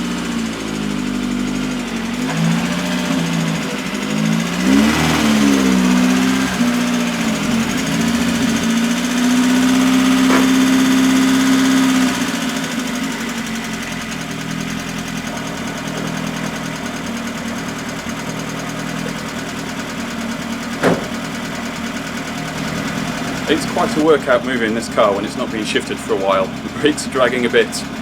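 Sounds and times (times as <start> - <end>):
car engine running: 0.0 - 28.0
sharp knock: 20.8 - 21.2.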